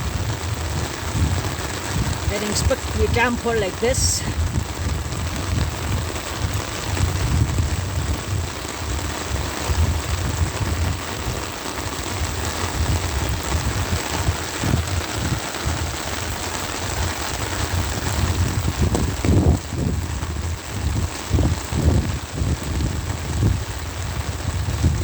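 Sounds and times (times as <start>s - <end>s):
rain pattering on an umbrella: 0.0s - 25.0s.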